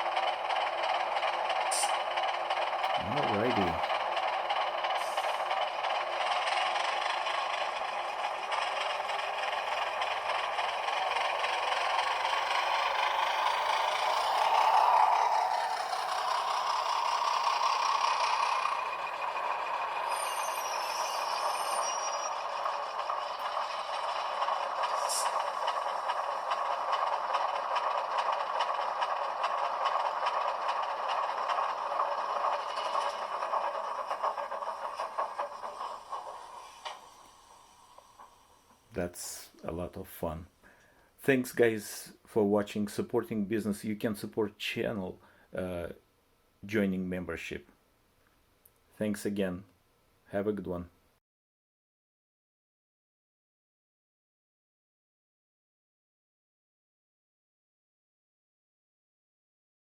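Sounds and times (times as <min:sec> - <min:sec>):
model train wheels rattling on track: 0:00.0 - 0:39.5
thin diesel engine sound from speaker: 0:02.8 - 0:04.2.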